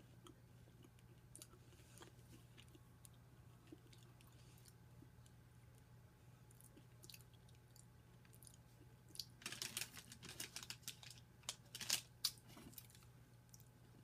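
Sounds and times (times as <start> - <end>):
crisp candy crunches: 9.2 - 13.0.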